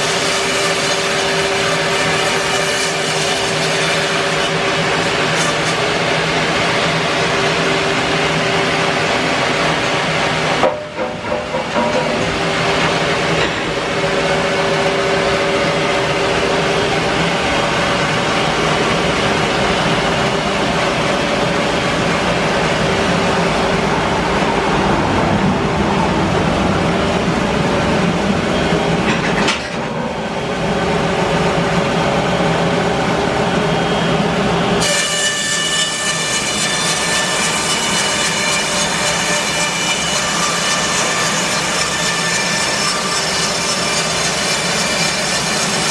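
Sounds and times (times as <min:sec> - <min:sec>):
bandsaw mill cutting log: 0:00.0 - 0:23.9, 0:34.8 - 0:45.9.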